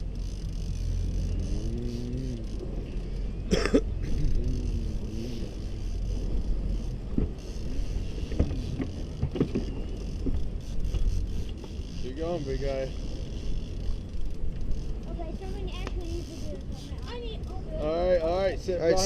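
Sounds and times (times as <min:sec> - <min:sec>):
boat engine rumble: 0:00.0 - 0:19.0
faint clicks: 0:15.6 - 0:16.8.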